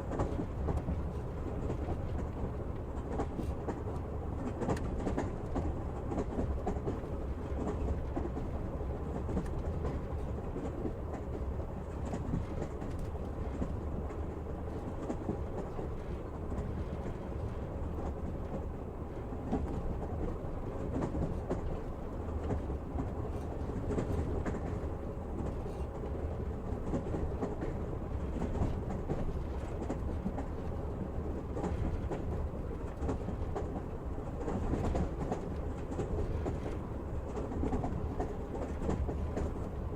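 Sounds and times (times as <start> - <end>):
train wheels rumbling: 0.0 - 39.9.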